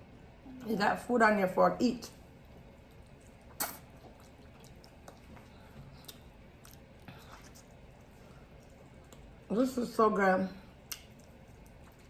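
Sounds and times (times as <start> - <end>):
soft chewing: 2.0 - 9.6, 10.5 - 12.0.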